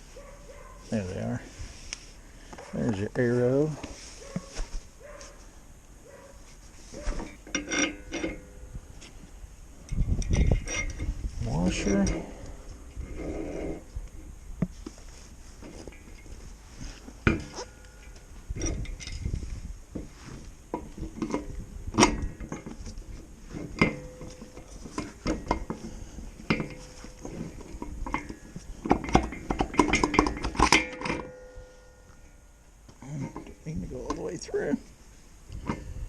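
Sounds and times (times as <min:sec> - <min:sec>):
steel hardware clinking: 0:07.2 - 0:08.6, 0:23.5 - 0:32.6.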